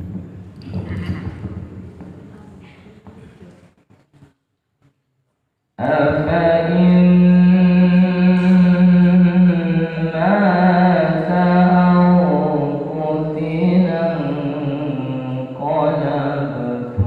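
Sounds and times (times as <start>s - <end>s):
person chanting melodically: 5.8s - 17.0s.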